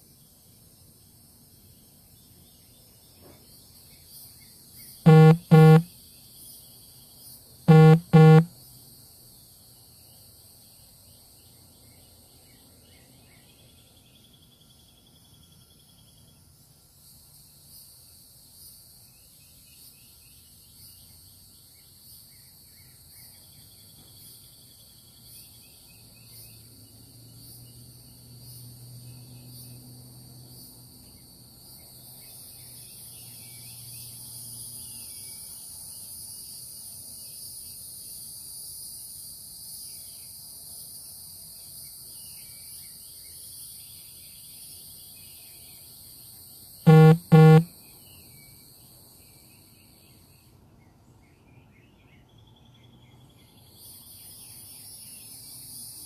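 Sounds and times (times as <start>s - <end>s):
faint bird chirps: 4.8s - 5.9s, 7.7s - 8.5s, 46.9s - 48.2s
short loud horn beeps: 5.1s - 5.9s, 7.7s - 8.5s, 46.9s - 47.7s.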